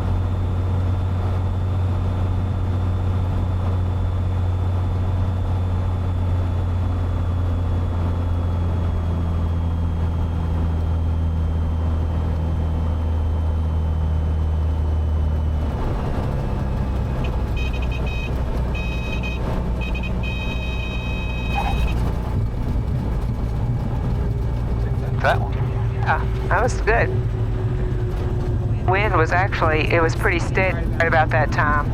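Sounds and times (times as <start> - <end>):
aircraft engine and propeller drone: 0.0 - 31.9
high warning tone: 16.0 - 22.8.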